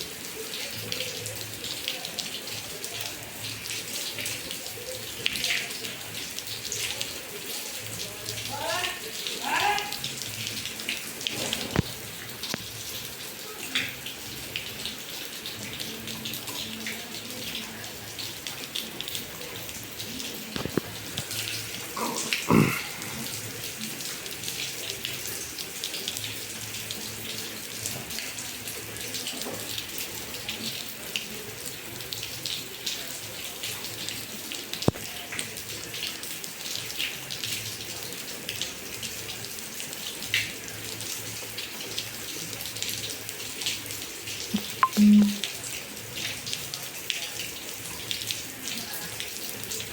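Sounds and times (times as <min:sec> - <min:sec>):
rain falling: 0:00.0 - 0:49.9
water splashing and running: 0:18.2 - 0:29.7.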